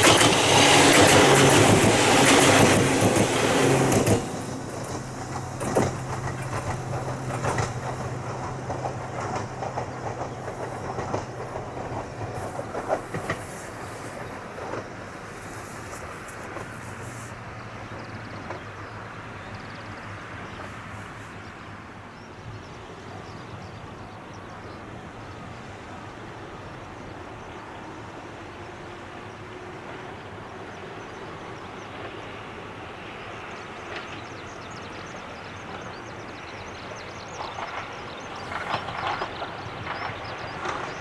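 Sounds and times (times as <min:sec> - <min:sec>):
wheel clatter over rail joints: 0:00.0 - 0:17.2, 0:33.8 - 0:41.0
distant train rumble and hiss: 0:00.0 - 0:41.0.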